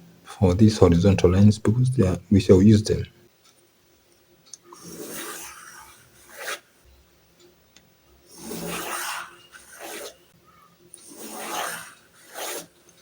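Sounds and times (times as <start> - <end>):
pencil scratching on paper: 4.8 - 6.7, 8.3 - 10.2, 10.9 - 13.0.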